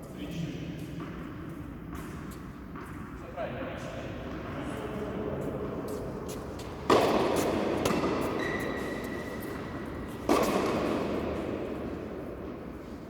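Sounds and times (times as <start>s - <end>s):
tennis ball struck by racket: 6.6s - 11.9s.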